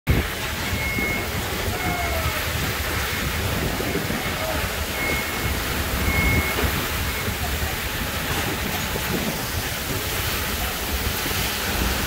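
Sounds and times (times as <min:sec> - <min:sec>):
heavy rain pouring: 0:00.1 - 0:12.0
wind buffeting microphone: 0:00.1 - 0:12.0.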